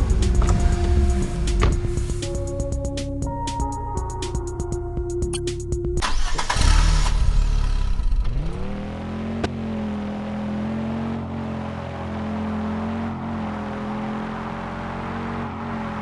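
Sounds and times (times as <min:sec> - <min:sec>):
music: 0:00.0 - 0:07.4
cartoon car engine starting and revving: 0:06.0 - 0:16.0.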